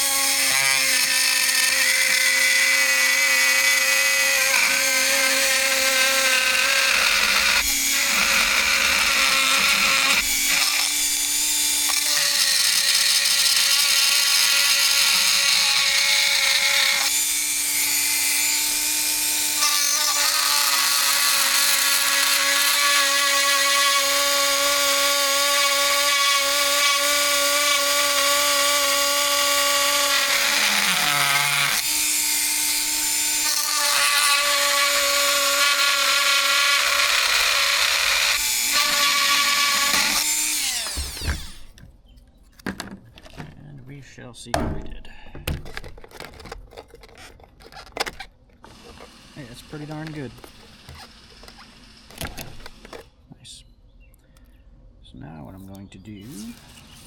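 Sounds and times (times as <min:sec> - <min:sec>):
rotary tool cutting plastic: 0:00.0 - 0:41.8, 0:45.6 - 0:53.1, 0:56.2 - 0:57.0.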